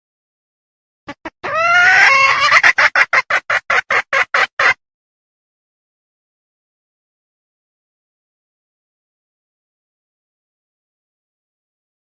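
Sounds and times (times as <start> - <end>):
hen calling: 1.1 - 4.7
hen clucking: 1.1 - 4.8.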